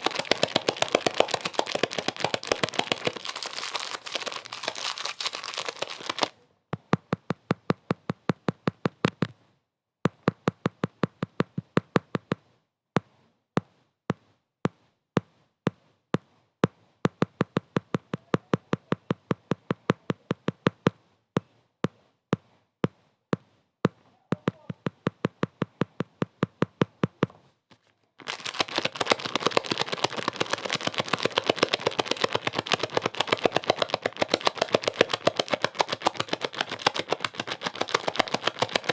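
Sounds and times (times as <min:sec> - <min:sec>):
dense crackling noise: 0:00.0 - 0:06.3, 0:28.2 - 0:38.9
rapid sharp clicks: 0:00.0 - 0:06.3, 0:28.2 - 0:38.9.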